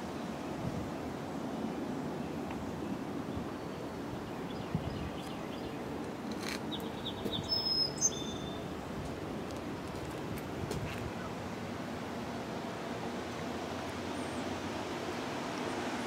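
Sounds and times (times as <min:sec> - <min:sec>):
high bird chirps: 0:06.7 - 0:08.6.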